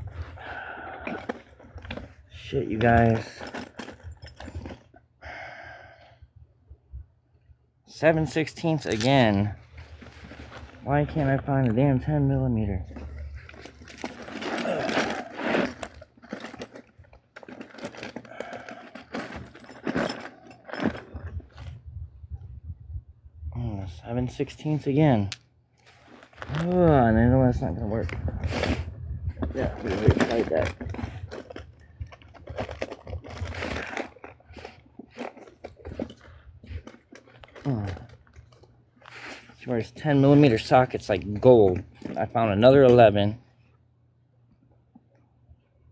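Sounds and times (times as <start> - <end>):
metal tools clinking and rattling: 1.0 - 5.0, 8.3 - 11.8, 12.8 - 21.8, 29.4 - 38.7, 39.7 - 43.2.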